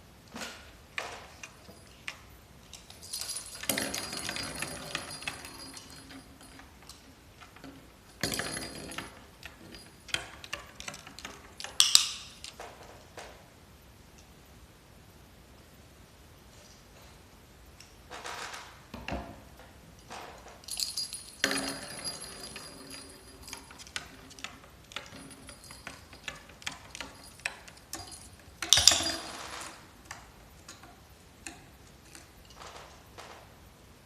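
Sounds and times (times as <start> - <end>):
metal toy jingling: 2.7 - 7.0, 20.6 - 30.0.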